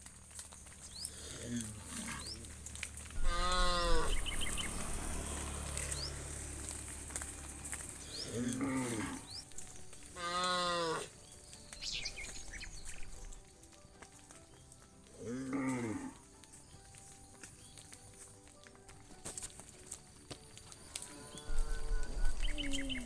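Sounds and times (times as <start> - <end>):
cattle mooing: 3.2 - 9.4, 10.2 - 11.1, 15.2 - 16.2, 21.0 - 23.0.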